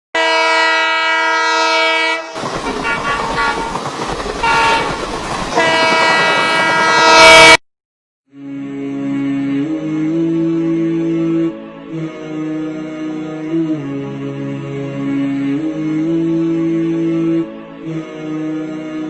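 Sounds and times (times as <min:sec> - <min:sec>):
train horn blast: 0:00.2 - 0:07.6
train running past: 0:00.4 - 0:07.6
music: 0:08.3 - 0:19.0.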